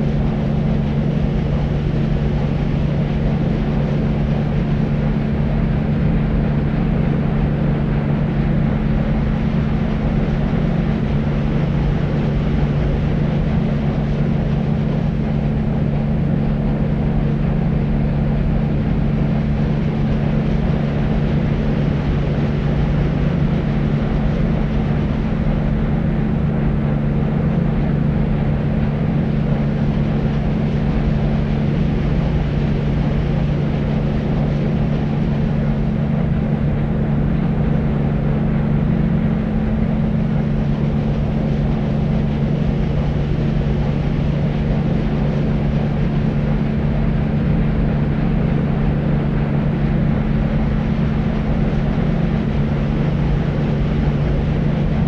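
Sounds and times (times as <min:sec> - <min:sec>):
deep white noise: 0:00.0 - 0:55.0.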